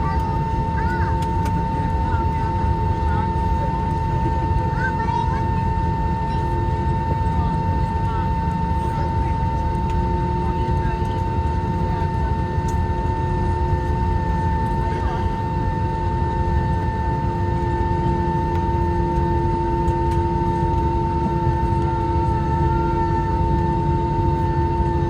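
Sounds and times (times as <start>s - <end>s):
airplane taxiing engine whine: 0.0s - 25.0s.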